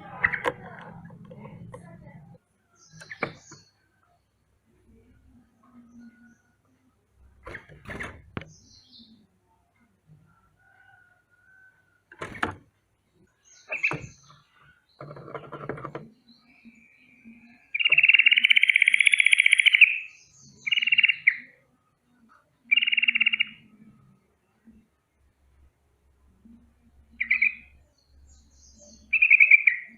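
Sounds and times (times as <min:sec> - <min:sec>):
bird alarm trill: 0:17.8 - 0:21.5, 0:22.7 - 0:23.6, 0:27.2 - 0:27.7, 0:29.0 - 0:29.9.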